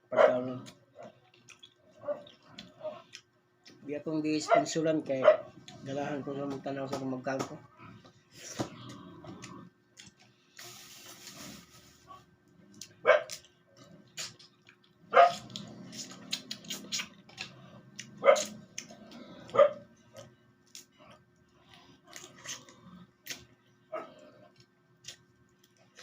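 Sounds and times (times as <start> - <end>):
dog barking: 0.1 - 1.1, 4.4 - 5.6, 13.0 - 13.4, 15.1 - 15.4, 18.2 - 18.6, 19.5 - 19.8.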